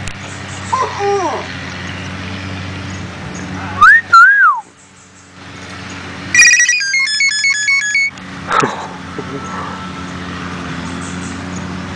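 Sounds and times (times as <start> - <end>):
bird whistled glides: 3.8 - 4.8
bird mimicking beeping ringtone: 6.3 - 8.2.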